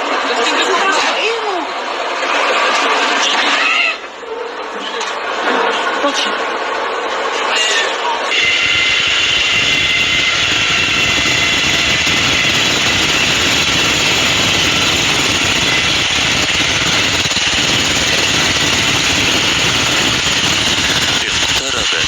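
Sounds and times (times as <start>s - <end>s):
heavy engine running: 8.0s - 22.0s.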